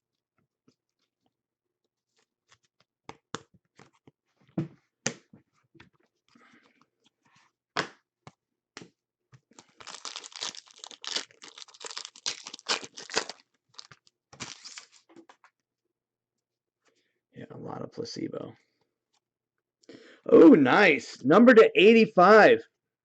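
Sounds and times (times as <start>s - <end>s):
foil wrapper tearing and crinkling: 9.6s - 15.1s
cards clicking and rustling: 9.6s - 15.4s.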